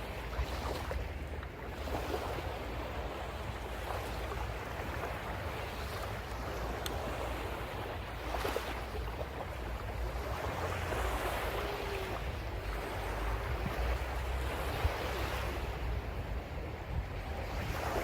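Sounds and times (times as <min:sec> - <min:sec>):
sea waves breaking: 0:00.0 - 0:18.0
wind rumble on microphone: 0:00.0 - 0:18.0.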